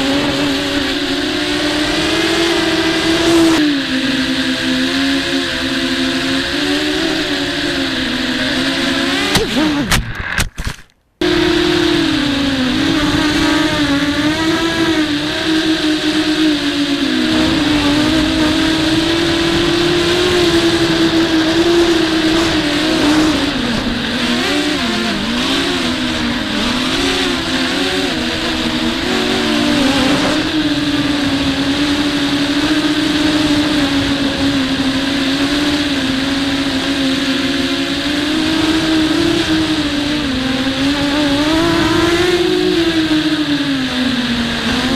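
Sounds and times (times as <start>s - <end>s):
quadcopter motors whining: 0.0s - 44.9s
sharp clicks: 9.3s - 11.0s
wind buffeting: 11.2s - 36.4s.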